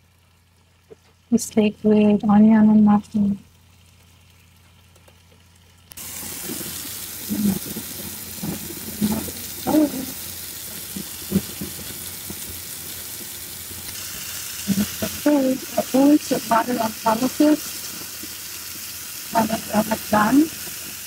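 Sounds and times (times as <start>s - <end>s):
steak sizzling in a pan: 5.9s - 21.0s.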